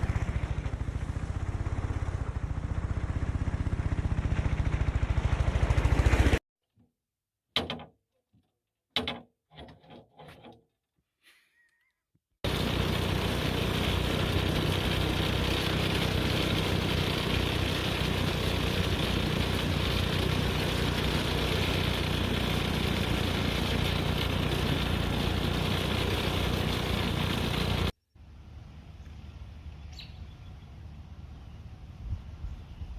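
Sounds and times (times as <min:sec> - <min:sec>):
go-kart engine running: 0:00.0 - 0:06.4, 0:12.4 - 0:27.9.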